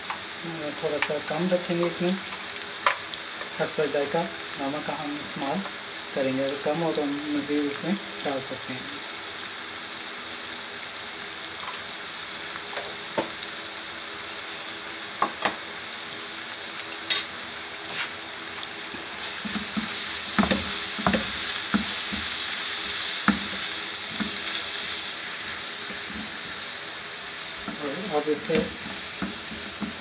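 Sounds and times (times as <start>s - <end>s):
masala sizzling in frying pan: 0.0s - 30.0s
spatula scraping and knocking pan: 19.2s - 24.6s, 28.5s - 30.0s.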